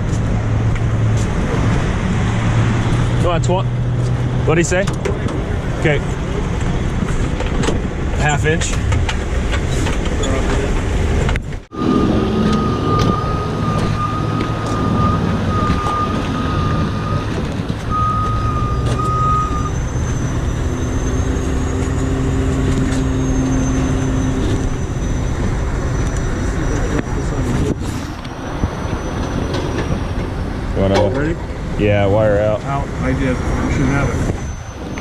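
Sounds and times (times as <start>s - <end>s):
diesel truck engine running: 0.0s - 35.0s
high-pitched whine: 11.7s - 17.3s.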